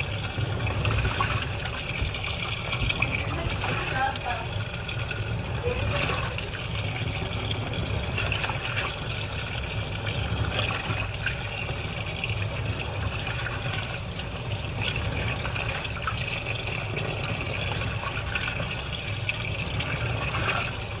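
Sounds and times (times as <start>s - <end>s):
water splashing in washing machine: 0.0s - 21.0s.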